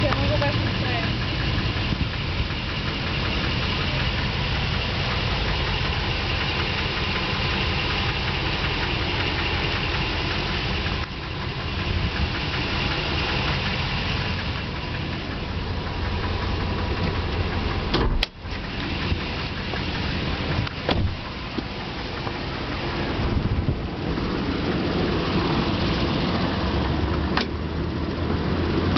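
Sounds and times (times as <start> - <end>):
engine idling with knocking: 0.0 - 28.9
sharp click: 27.4 - 27.6.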